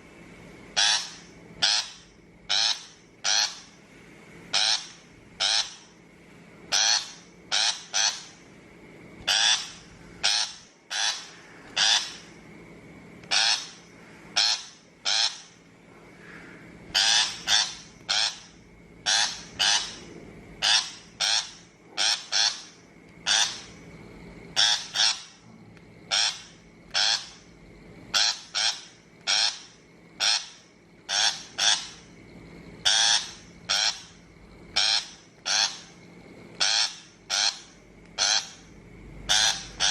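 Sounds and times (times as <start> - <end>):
shrike harsh scolding calls: 0.8 - 3.8, 4.5 - 6.0, 6.7 - 8.4, 9.2 - 12.4, 13.3 - 15.6, 16.2 - 23.8, 24.5 - 25.4, 26.1 - 27.5, 28.1 - 32.1, 32.8 - 36.0, 36.6 - 38.7, 39.3 - 39.9.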